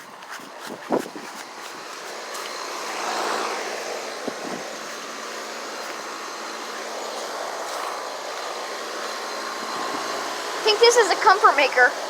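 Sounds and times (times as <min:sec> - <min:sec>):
air conditioner fan whoosh: 0:00.0 - 0:11.2.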